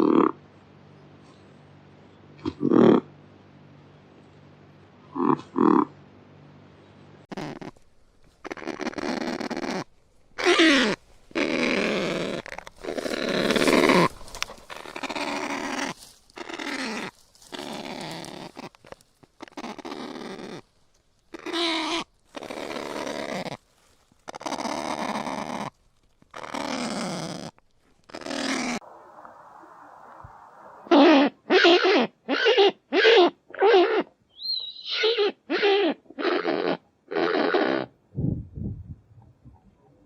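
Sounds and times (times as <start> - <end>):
parrot squawking and grunting: 7.3 - 7.8, 8.4 - 18.8, 19.4 - 20.6, 21.3 - 23.6, 24.3 - 25.7, 26.3 - 27.5, 28.1 - 28.8, 30.9 - 34.1, 34.8 - 38.0.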